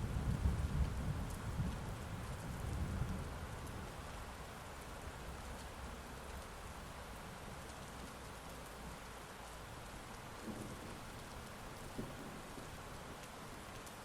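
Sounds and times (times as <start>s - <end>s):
heavy rain falling: 0.0s - 14.0s
low thunder rumble: 10.4s - 11.2s.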